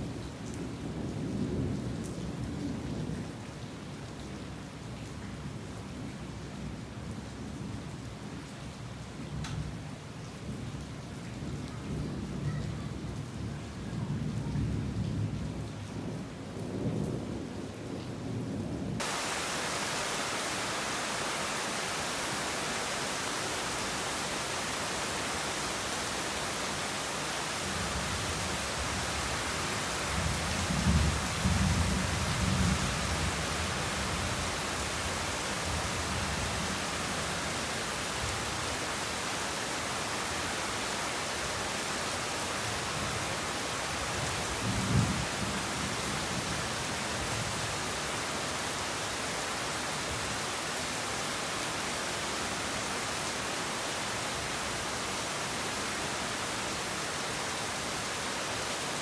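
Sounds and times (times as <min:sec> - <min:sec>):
light rain: 0:00.0 - 0:59.0
thunder rumbling: 0:19.0 - 0:38.8
heavy rain hissing: 0:19.0 - 0:59.0.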